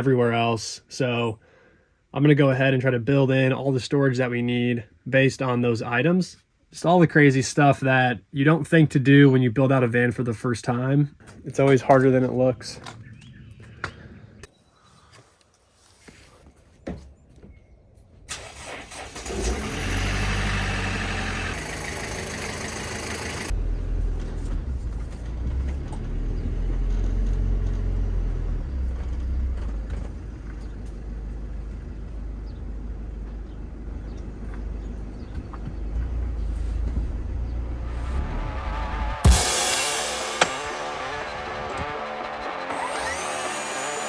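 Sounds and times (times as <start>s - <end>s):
van engine starting and revving: 18.3s - 44.0s.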